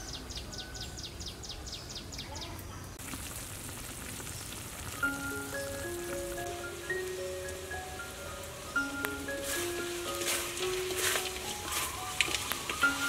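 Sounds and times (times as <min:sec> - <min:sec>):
chicken sizzling in a wok: 0:03.0 - 0:13.0
mallet percussion music: 0:05.0 - 0:13.0.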